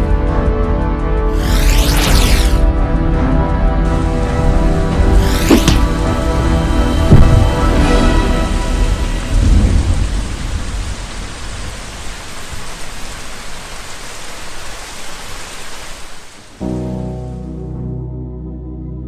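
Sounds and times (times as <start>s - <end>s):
thunder rumbling: 3.9s - 13.2s
heavy rain hissing: 3.9s - 16.6s.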